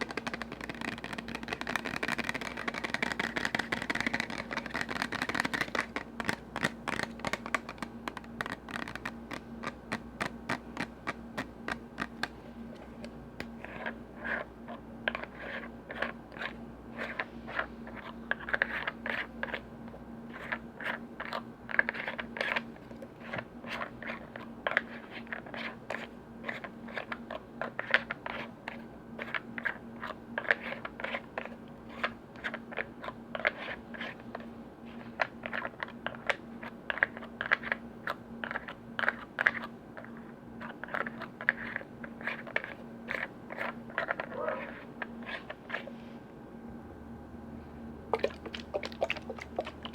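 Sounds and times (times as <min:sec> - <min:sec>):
steady low hum: 0:00.0 - 0:24.7, 0:31.3 - 0:49.9
tapping on lids and containers: 0:48.2 - 0:49.9.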